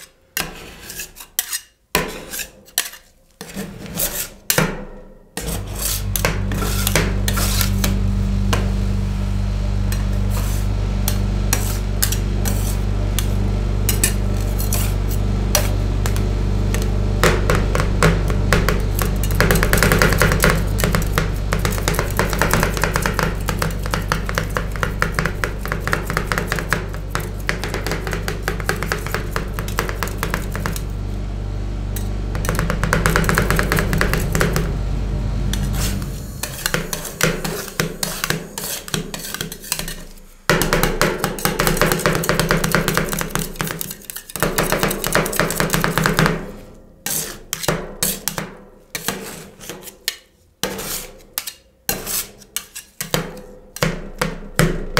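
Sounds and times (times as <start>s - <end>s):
metal spatulas chopping and scraping: 0.0s - 7.9s, 9.9s - 16.8s, 19.0s - 30.9s, 35.5s - 54.3s
steady low hum: 3.9s - 43.8s.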